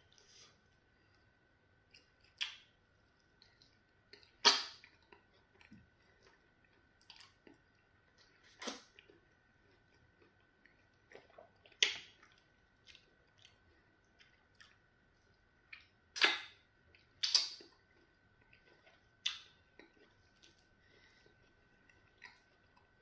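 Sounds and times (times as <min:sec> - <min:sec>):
wet chewing: 0:01.9 - 0:23.0
sharp lip smacks: 0:04.4 - 0:04.9, 0:16.2 - 0:16.6, 0:17.2 - 0:17.6.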